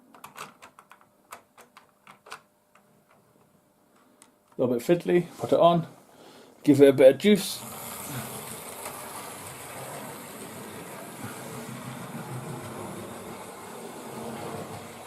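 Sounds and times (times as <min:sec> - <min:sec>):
model train motor whirring: 0:07.5 - 0:15.0
wheels running on rails: 0:07.5 - 0:15.0.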